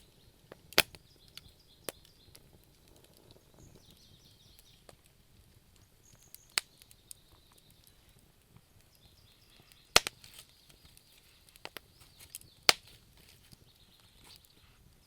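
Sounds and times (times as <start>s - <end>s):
wood fire crackling: 0.0s - 15.0s
sharp loud fire cracks: 9.9s - 10.4s.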